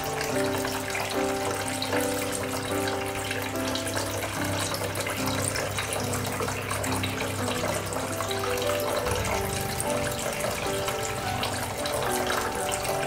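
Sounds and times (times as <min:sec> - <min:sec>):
fountain water splashing: 0:00.0 - 0:13.0
soft background music: 0:00.0 - 0:13.0.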